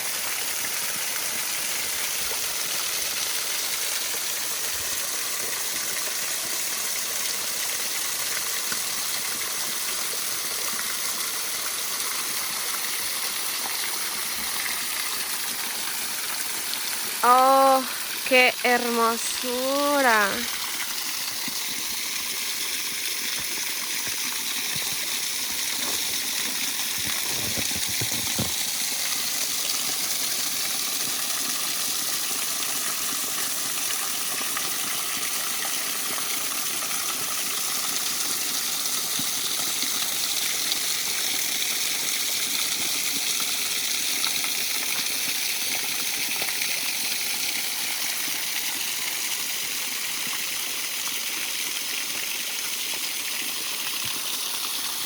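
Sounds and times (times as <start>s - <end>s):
waterfall rushing: 17.1s - 20.6s.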